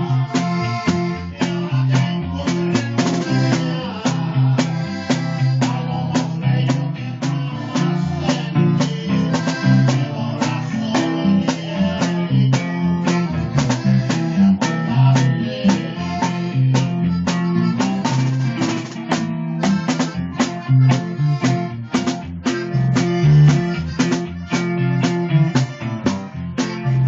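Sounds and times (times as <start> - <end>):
band with plucked strings and drums: 0.0 - 27.0.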